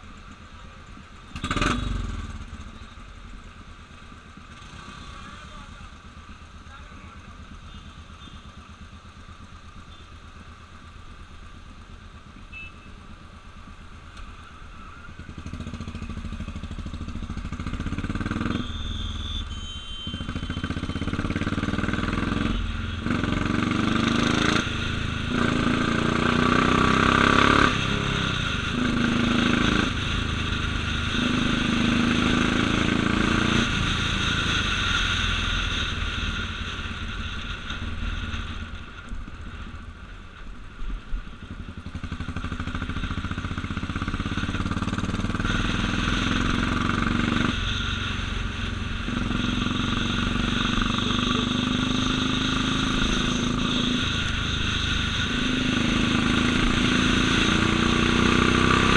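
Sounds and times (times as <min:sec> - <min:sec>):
motorcycle engine accelerating: 0:15.2 - 0:18.9, 0:20.1 - 0:39.8, 0:41.4 - 0:58.9.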